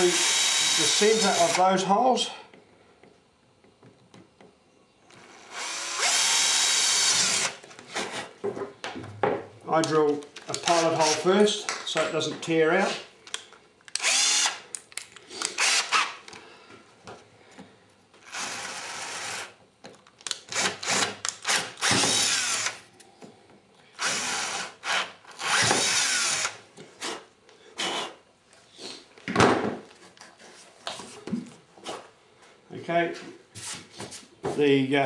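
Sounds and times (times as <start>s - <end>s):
power drill running: 0.0s - 1.6s, 5.2s - 7.6s, 14.0s - 14.6s, 15.5s - 16.2s, 20.5s - 22.8s, 24.0s - 26.6s.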